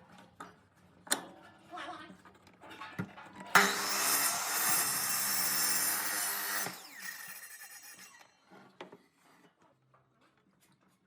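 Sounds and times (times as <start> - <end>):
electric power tool winding down: 3.6 - 8.3.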